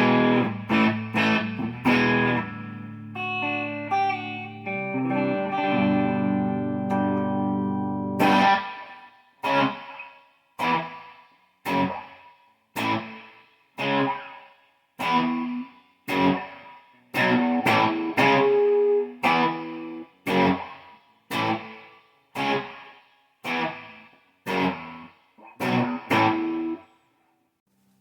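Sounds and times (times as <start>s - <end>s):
electric guitar chords ringing: 0.0s - 10.0s, 15.0s - 16.6s, 17.2s - 20.8s, 25.6s - 26.8s.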